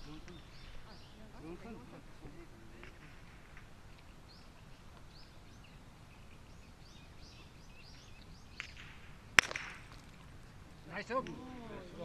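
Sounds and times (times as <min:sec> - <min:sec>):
bird chirping: 0:00.0 - 0:01.6, 0:03.9 - 0:09.1
faint outdoor background noise: 0:00.0 - 0:12.0.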